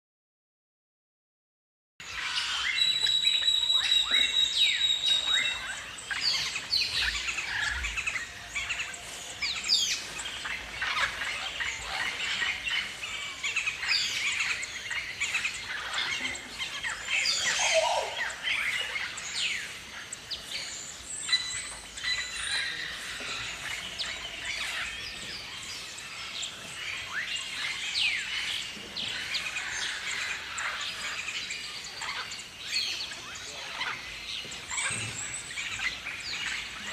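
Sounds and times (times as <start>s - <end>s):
galahs screeching: 2.2s - 19.3s.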